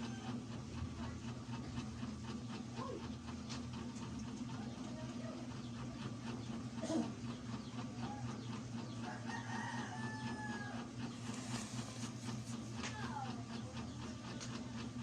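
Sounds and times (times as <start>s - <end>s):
steady low hum: 0.0s - 15.0s
rooster crowing: 9.0s - 11.0s.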